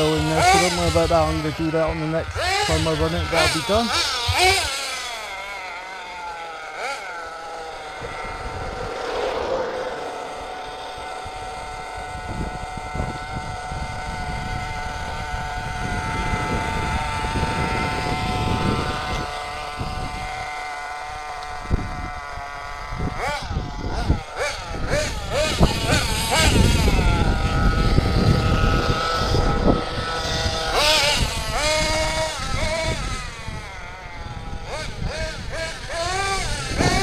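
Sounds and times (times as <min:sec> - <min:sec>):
rc truck engine buzzing whine: 0:00.0 - 0:37.0
rough low rumble: 0:07.4 - 0:12.8.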